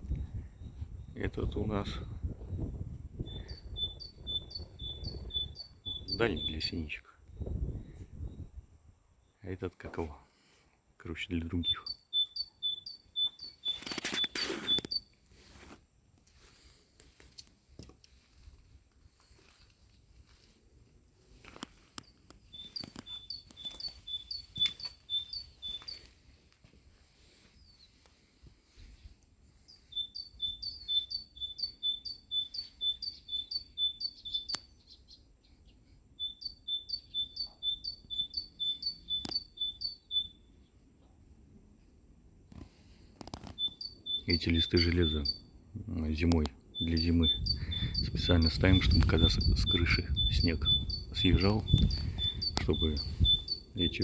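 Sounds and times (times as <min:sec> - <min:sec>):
great tit singing two-note song: 0:03.3 - 0:06.9, 0:11.4 - 0:14.0, 0:22.5 - 0:26.0, 0:29.8 - 0:34.6, 0:36.2 - 0:40.4, 0:43.6 - 0:45.5, 0:46.8 - 0:54.0
rustling: 0:13.6 - 0:29.2.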